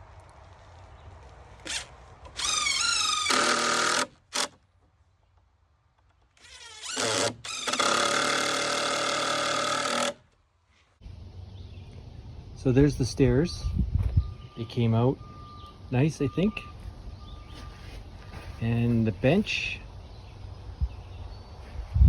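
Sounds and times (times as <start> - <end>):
power drill driving screws: 1.6 - 4.6, 6.4 - 10.2.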